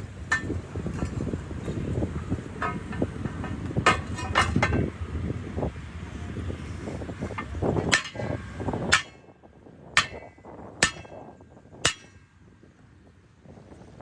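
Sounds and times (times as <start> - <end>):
hammer blows on metal: 7.2 - 12.3.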